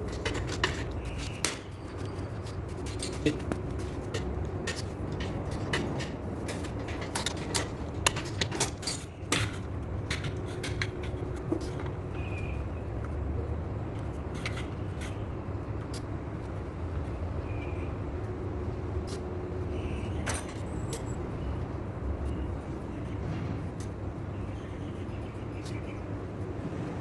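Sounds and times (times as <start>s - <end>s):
tools clicking and clinking: 4.1s - 11.9s.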